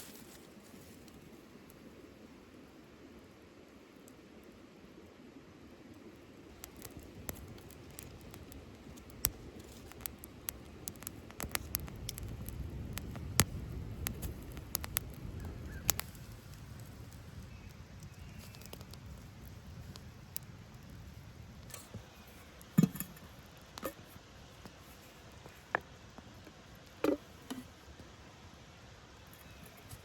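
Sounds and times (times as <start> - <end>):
sharp clicks and snaps: 6.5 - 16.2.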